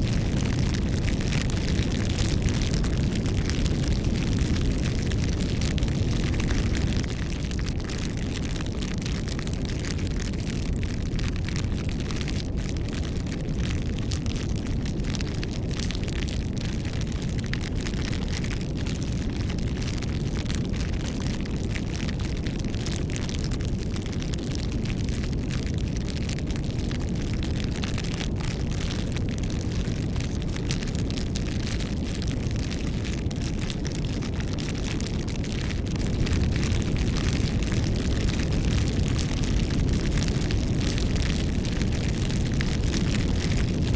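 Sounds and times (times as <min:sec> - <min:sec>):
bonfire flames rushing: 0:00.0 - 0:43.9
burning wood crackling and popping: 0:00.0 - 0:43.9.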